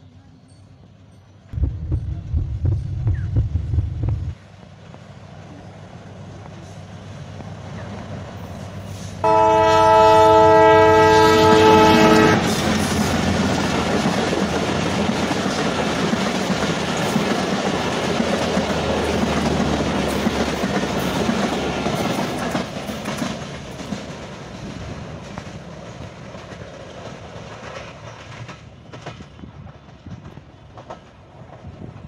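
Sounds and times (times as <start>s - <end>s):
train rumble: 0.0s - 32.0s
wheels clacking over rail joints: 12.4s - 32.0s.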